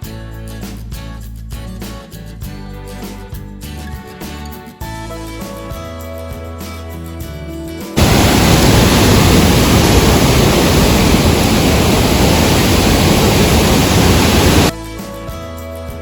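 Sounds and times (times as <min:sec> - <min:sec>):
waterfall rushing: 0:08.0 - 0:14.7.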